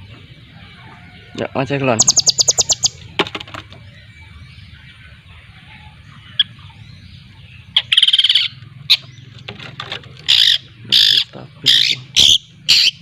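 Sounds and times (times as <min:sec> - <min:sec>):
shrike chattering: 0:02.0 - 0:03.9, 0:07.6 - 0:13.0.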